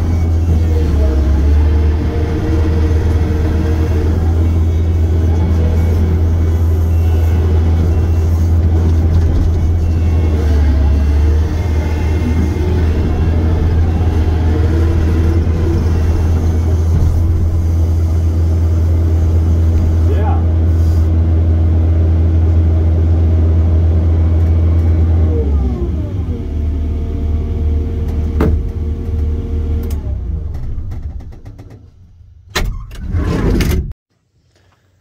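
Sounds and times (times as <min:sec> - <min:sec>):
diesel engine humming: 0:00.0 - 0:30.9.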